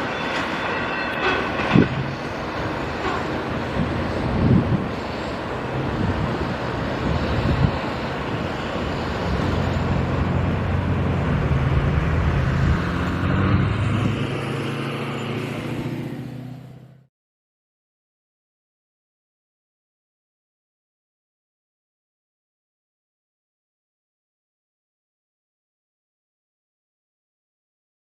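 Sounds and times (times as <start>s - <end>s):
train wheels rumbling on rails: 0.0s - 16.1s
low diesel engine drone: 0.0s - 17.1s.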